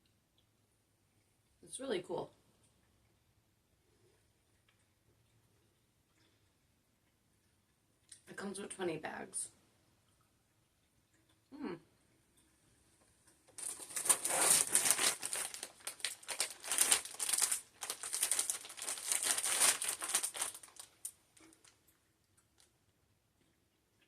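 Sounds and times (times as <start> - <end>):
plastic candy bag crinkling: 13.5 - 21.8.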